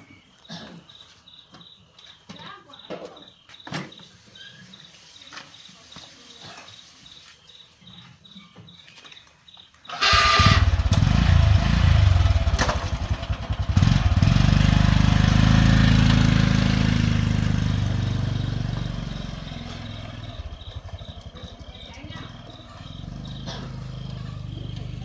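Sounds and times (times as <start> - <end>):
pull starter: 9.9 - 25.0
small engine running: 9.9 - 25.0.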